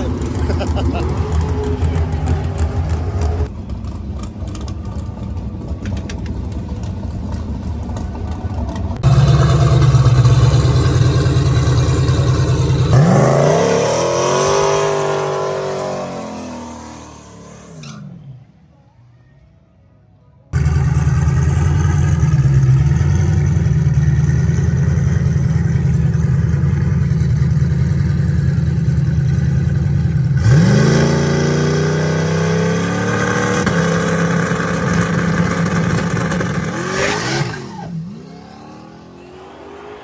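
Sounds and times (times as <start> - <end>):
drag car engine at high revs: 9.0 - 18.3, 20.6 - 40.0.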